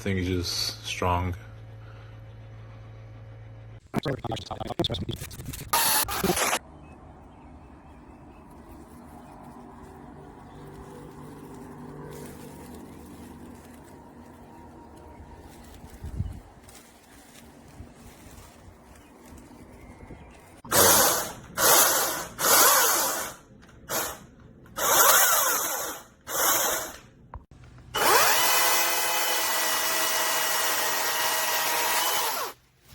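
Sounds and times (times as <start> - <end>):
power tool motor whine: 20.7 - 24.2, 24.8 - 27.0, 28.0 - 32.6.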